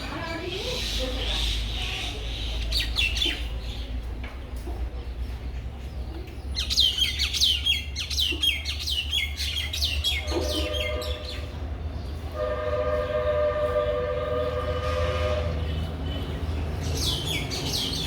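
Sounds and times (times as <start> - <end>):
two-note train horn: 10.2 - 11.6, 12.3 - 15.8.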